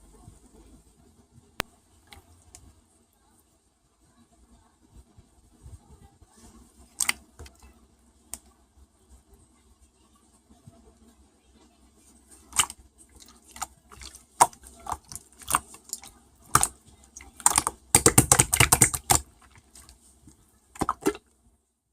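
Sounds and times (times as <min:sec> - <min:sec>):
slime squished by hand clicking: 0:07.0 - 0:07.5, 0:12.5 - 0:12.8, 0:13.6 - 0:19.9, 0:20.8 - 0:21.2.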